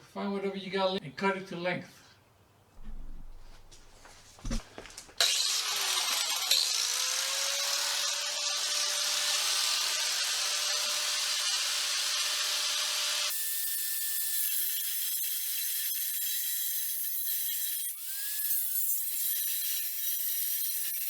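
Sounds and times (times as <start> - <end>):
power tool cutting metal tube: 5.2 - 21.0.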